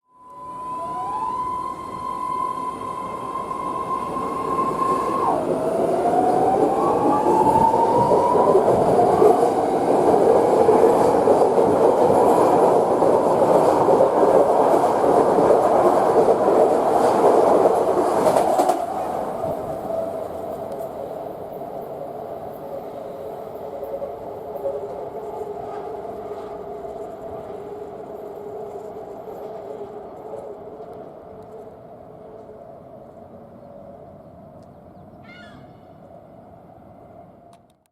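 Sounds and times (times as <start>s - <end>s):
train motor whine: 0.1s - 9.7s
wheel-on-rail rumble and clatter: 5.6s - 21.0s.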